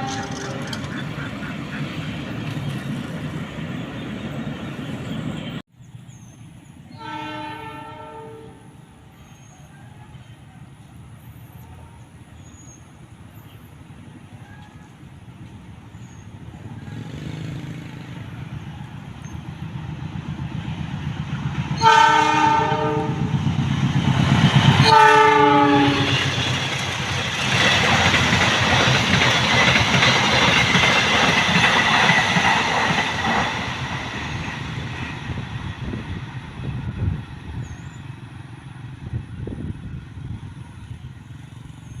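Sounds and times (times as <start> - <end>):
train horn blasts: 0.0 - 0.8, 6.9 - 8.8, 21.8 - 23.3, 24.8 - 26.3
carriages clattering over rails: 0.0 - 5.6, 26.0 - 36.0
train rumbling: 0.0 - 42.0.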